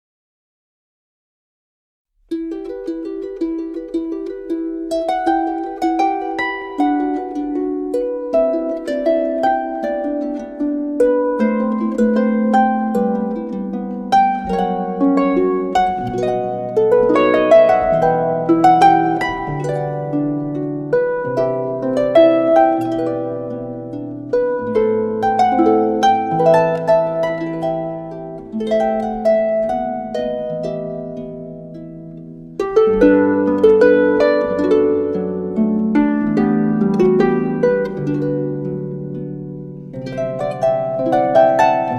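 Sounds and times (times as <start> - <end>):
plucked harp-like strings: 2.3 - 41.9.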